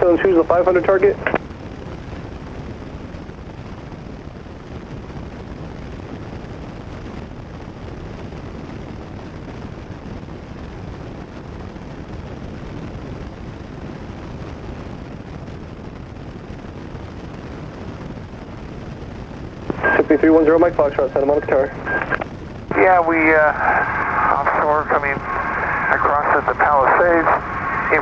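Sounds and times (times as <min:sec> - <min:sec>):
light aircraft engine and airflow drone: 0:19.4 - 0:28.0.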